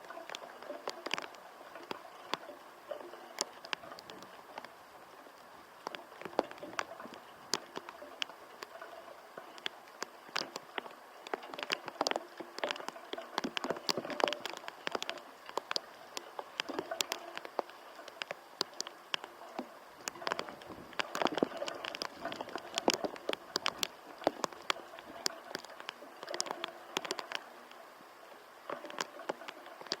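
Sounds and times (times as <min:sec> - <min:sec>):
raindrops pattering: 0:00.0 - 0:30.0.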